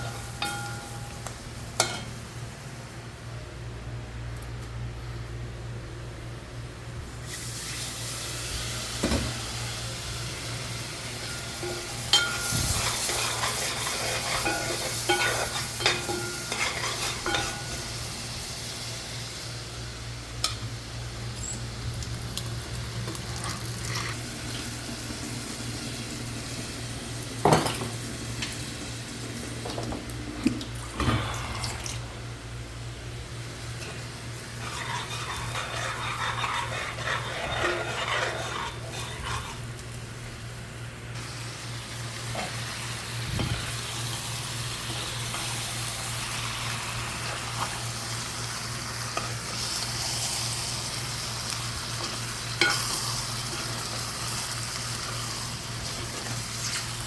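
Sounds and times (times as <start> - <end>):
food sizzling in a pan: 7.2 - 20.0, 21.4 - 29.7, 33.6 - 40.6, 41.2 - 57.0
utensil stirring and knocking pan: 34.6 - 39.6.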